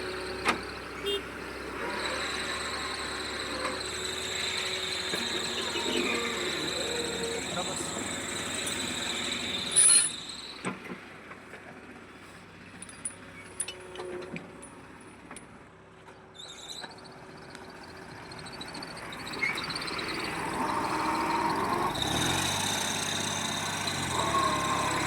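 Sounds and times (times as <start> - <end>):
loud machine squeal: 1.0 - 10.7, 16.4 - 25.0
machinery running: 1.6 - 10.6, 17.8 - 25.0.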